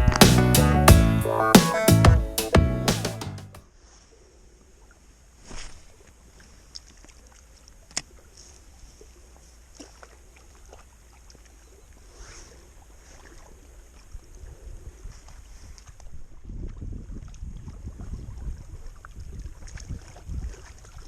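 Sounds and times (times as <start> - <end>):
water lapping against kayak hull: 5.7 - 21.0
wind rumbling on microphone: 14.1 - 21.0.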